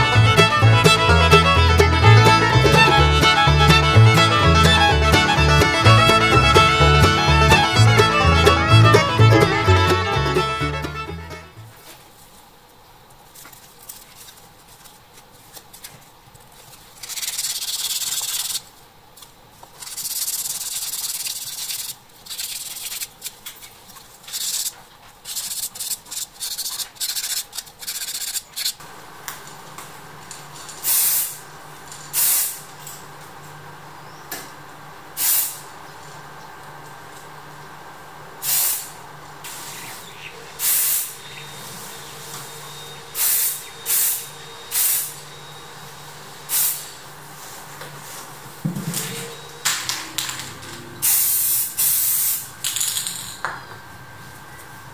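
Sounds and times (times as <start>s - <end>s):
spray-paint can spraying: 17.0s - 18.6s, 19.8s - 23.1s, 24.3s - 24.7s, 25.3s - 28.7s, 30.8s - 31.4s, 32.1s - 32.6s, 35.2s - 35.6s, 38.4s - 38.9s, 40.6s - 41.1s, 43.2s - 45.1s, 46.5s - 46.9s, 51.0s - 52.4s
hisses: 30.8s - 31.4s, 32.1s - 32.7s, 35.2s - 35.7s, 38.4s - 42.4s, 43.1s - 45.2s, 46.5s - 47.1s, 51.0s - 52.5s.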